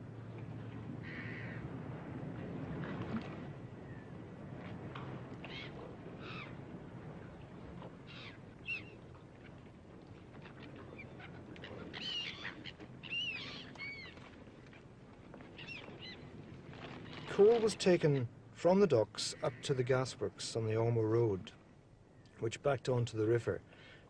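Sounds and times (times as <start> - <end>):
birds calling and chirping: 5.4 - 6.6, 8.0 - 9.6, 10.4 - 14.3, 15.5 - 16.4.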